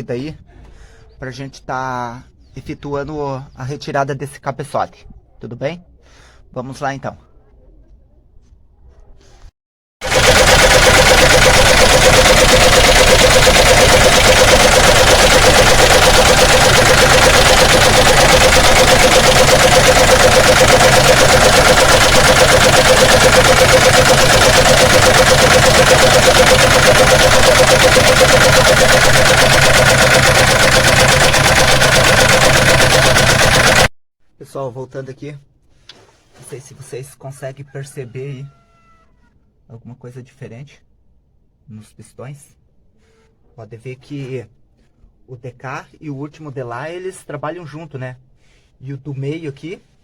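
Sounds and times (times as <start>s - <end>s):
engine running with loud knocking: 10.0s - 33.9s.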